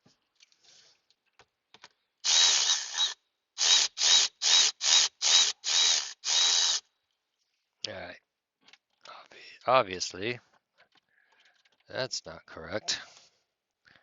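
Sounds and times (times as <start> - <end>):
power drill whining: 2.2 - 6.9.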